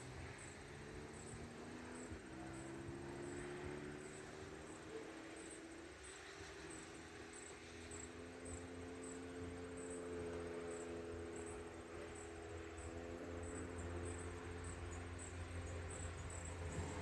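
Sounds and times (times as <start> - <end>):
distant engine-like drone: 0.0 - 17.0
insects chirping: 0.0 - 17.0.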